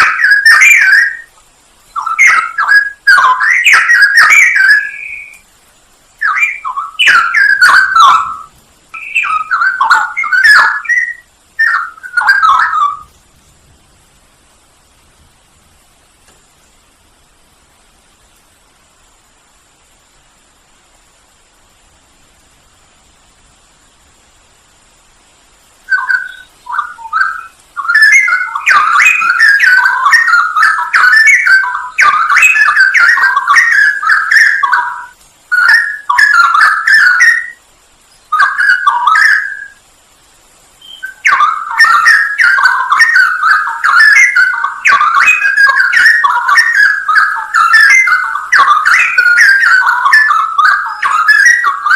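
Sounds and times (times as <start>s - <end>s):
bird singing warbled phrases: 0.0s - 13.4s, 25.8s - 39.9s, 40.7s - 51.9s.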